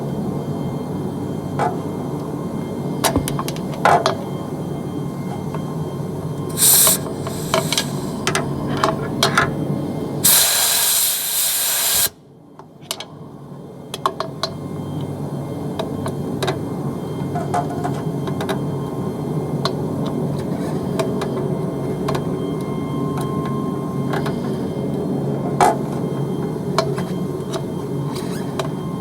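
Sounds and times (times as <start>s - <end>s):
compressed air hissing: 6.5s - 8.3s, 10.2s - 12.2s.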